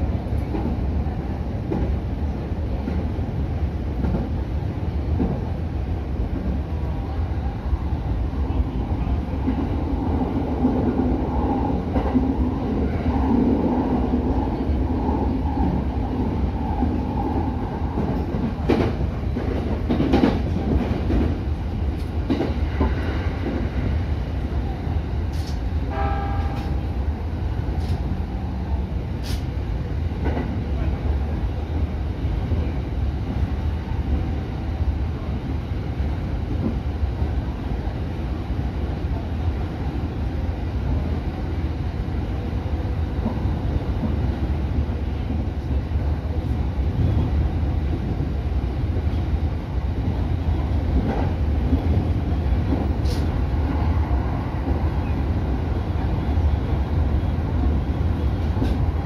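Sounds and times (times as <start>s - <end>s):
train running rumble and hum: 0.0s - 59.0s.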